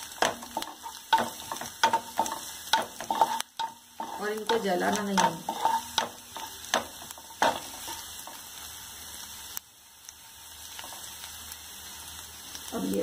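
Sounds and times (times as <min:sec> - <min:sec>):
garlic and ginger sizzling in oil: 0:00.0 - 0:13.0
wooden spatula knocking on pan: 0:00.2 - 0:07.7.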